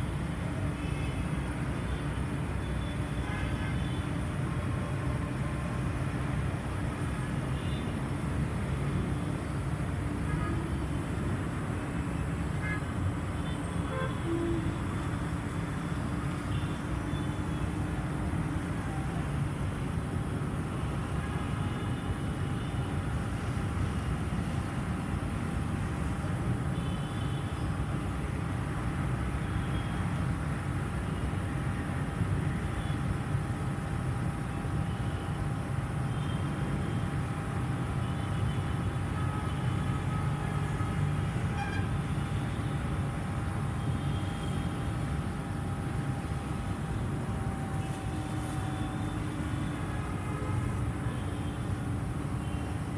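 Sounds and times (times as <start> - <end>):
faint constant whine: 0.0 - 52.9.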